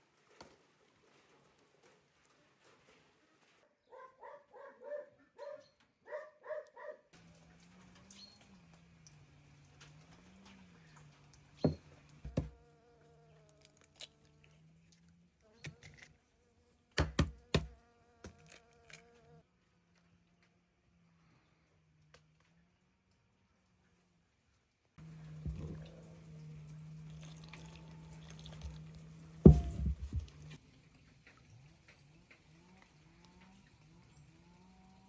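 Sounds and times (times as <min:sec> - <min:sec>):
fly buzzing: 0:11.6 - 0:14.8, 0:15.4 - 0:19.4, 0:25.0 - 0:30.6
sharp knocks: 0:29.4 - 0:30.6.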